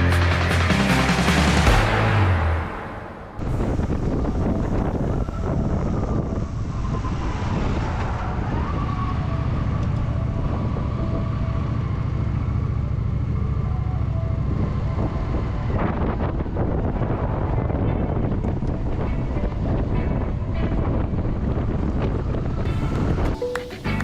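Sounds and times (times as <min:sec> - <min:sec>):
wind rushing over microphone: 0:03.4 - 0:13.2, 0:14.1 - 0:23.4.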